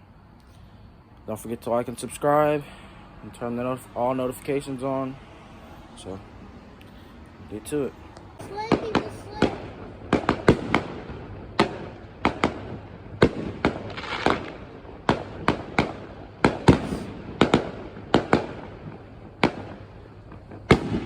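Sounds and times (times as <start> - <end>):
fireworks crackling: 0.0 - 21.0
fireworks bangs: 7.4 - 21.0.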